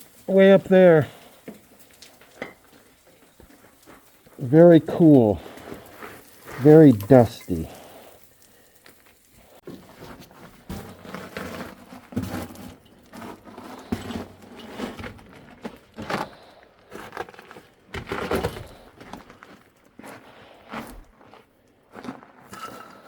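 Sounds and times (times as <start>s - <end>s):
footsteps crunching on loose rock: 15.1s - 22.5s.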